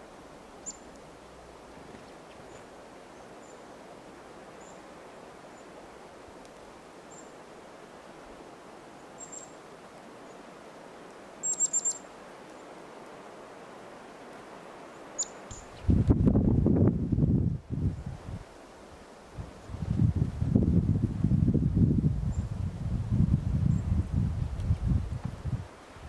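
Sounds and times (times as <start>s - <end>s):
outdoor hiss: 0.0s - 26.0s
songbird call notes: 0.6s - 1.0s, 2.0s - 3.7s, 4.6s - 4.9s, 7.0s - 7.4s, 9.0s - 9.6s, 11.4s - 12.8s, 14.9s - 15.9s.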